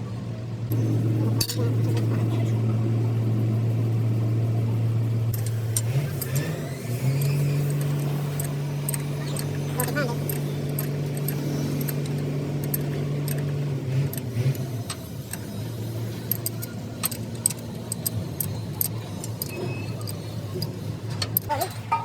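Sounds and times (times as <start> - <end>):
motor humming: 0.6 - 22.0
light metallic clinks: 7.0 - 13.5.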